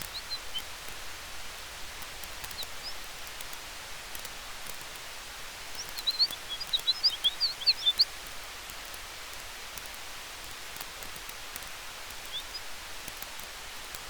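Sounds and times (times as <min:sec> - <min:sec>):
campfire hissing and crackling: 0:00.0 - 0:14.0
high chirps: 0:05.8 - 0:08.1.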